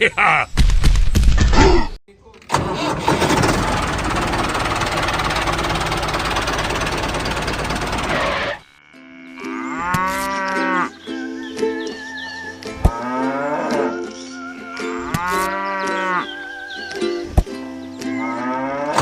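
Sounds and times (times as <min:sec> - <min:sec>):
cow mooing: 0:08.8 - 0:10.9, 0:14.9 - 0:16.4, 0:18.2 - 0:19.0.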